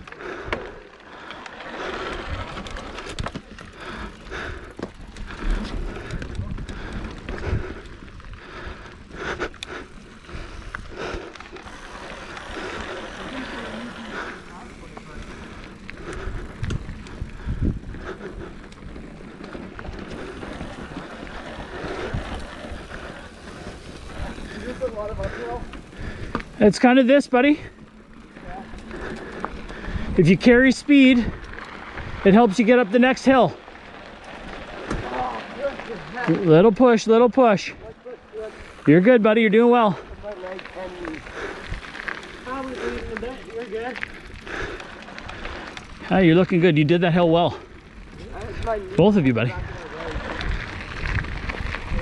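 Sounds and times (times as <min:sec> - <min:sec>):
bike rattling clicks and knocks: 0:00.0 - 0:52.0
bike tyres rumbling on dirt: 0:00.0 - 0:52.0
wind on microphone: 0:16.2 - 0:19.0, 0:49.5 - 0:52.0
bike knocking over bumps: 0:34.4 - 0:36.4.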